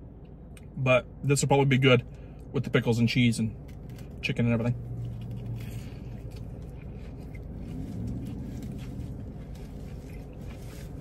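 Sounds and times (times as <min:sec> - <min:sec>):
car hum: 0:00.0 - 0:11.0
person chewing: 0:04.8 - 0:11.0.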